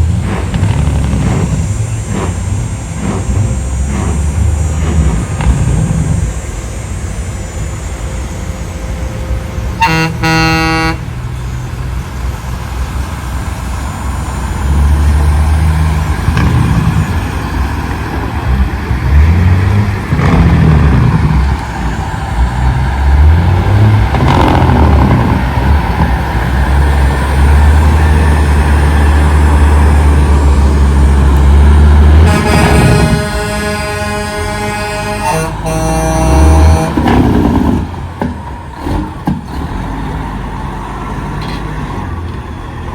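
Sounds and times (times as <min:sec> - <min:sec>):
diesel trucks rumbling past: 0:00.0 - 0:42.9
truck air horn: 0:08.1 - 0:11.6, 0:32.0 - 0:37.5.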